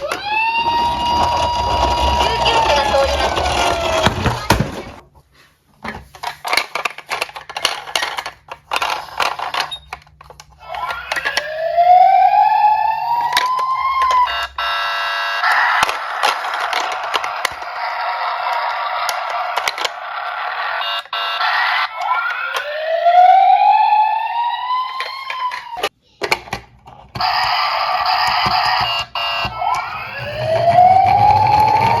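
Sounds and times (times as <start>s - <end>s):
siren wail rising: 0.0s - 4.4s, 10.6s - 25.9s, 27.3s - 32.0s
toy cars clattering: 0.0s - 5.0s, 5.8s - 11.6s, 13.3s - 22.7s, 24.9s - 32.0s.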